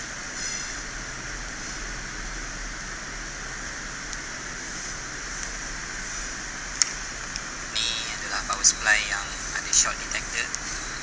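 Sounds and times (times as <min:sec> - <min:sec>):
background hiss: 0:05.6 - 0:11.0.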